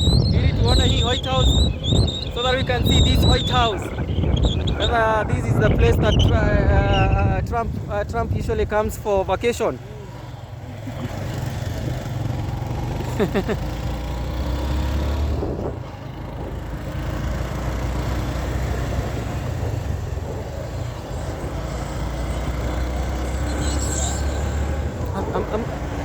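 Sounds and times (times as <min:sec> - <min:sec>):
rushing wind: 0:00.0 - 0:26.0
motorcycle engine running: 0:09.9 - 0:26.0.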